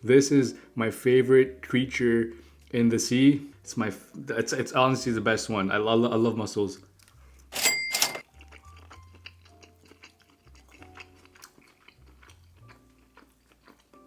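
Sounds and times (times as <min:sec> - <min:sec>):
soft background music: 0:00.0 - 0:14.0
chewing with wet clicks: 0:06.8 - 0:07.6, 0:08.2 - 0:14.0.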